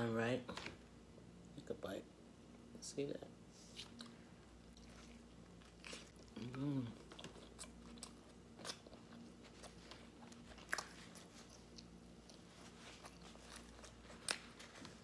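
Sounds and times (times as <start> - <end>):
faint chewing: 3.6 - 15.0.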